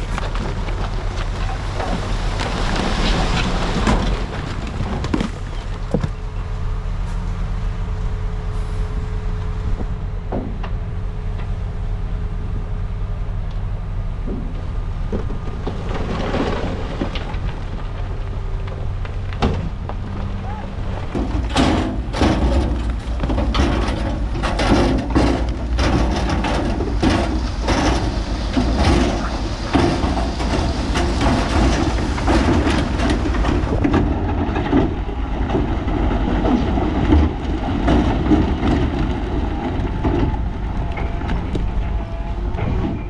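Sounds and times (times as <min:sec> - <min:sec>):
heavy diesel machinery running: 0:00.0 - 0:43.0
rock and steel clattering: 0:14.2 - 0:20.3, 0:21.0 - 0:43.0.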